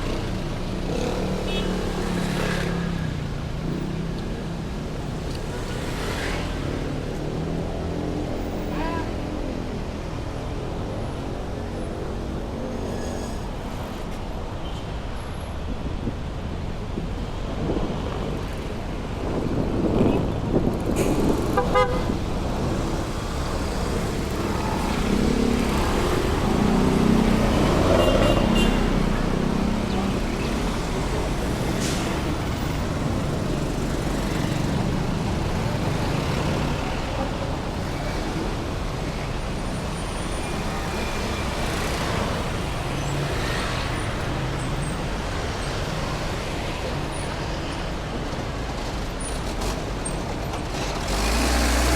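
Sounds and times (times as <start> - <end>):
heavy road traffic: 0.0 - 51.9
vehicle horns tooting: 21.6 - 22.2, 28.0 - 29.0.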